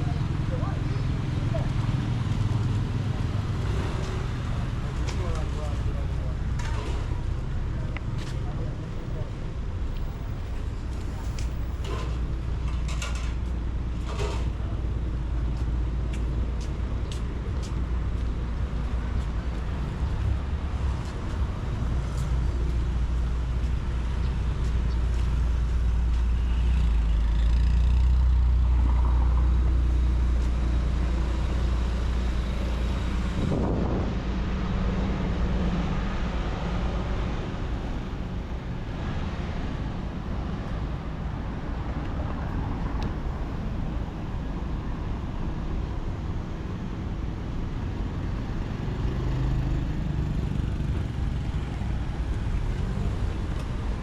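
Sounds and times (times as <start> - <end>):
road traffic rumble: 0.0 - 54.0.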